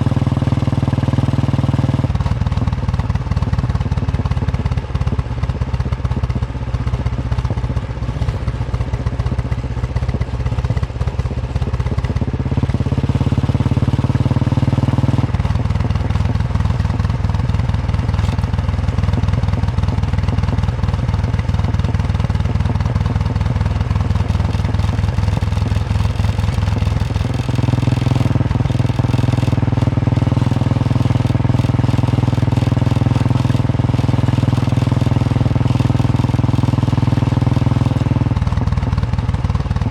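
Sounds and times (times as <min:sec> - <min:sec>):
motorcycle engine thumping: 0:14.5 - 0:39.9.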